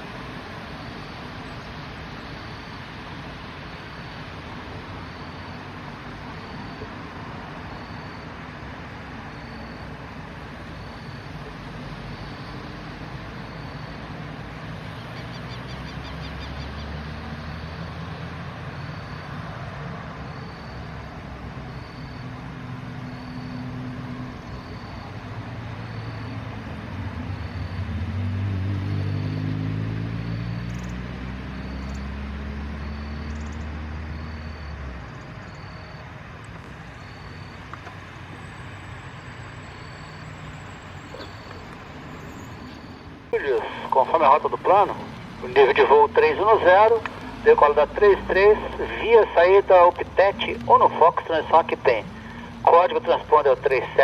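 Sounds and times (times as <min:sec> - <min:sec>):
engine low hum: 0:00.0 - 0:54.0
faint high beeps: 0:00.6 - 0:08.5, 0:09.1 - 0:14.4, 0:17.6 - 0:19.5, 0:23.0 - 0:26.5, 0:32.8 - 0:54.0
steady hiss: 0:43.4 - 0:54.0.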